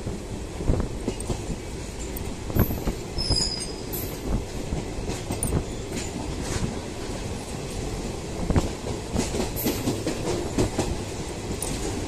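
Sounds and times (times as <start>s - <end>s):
train wheels knocking on track: 0.0s - 12.0s
high-pitched wheel squeal: 3.2s - 4.0s.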